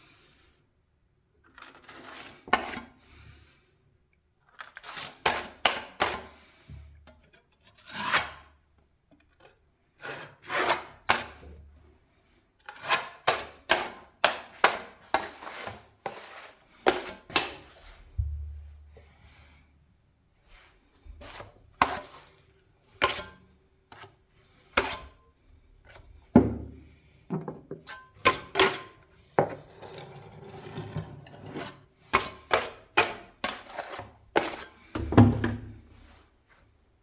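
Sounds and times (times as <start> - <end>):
scraping or rubbing: 13.0 - 18.1, 28.2 - 34.9.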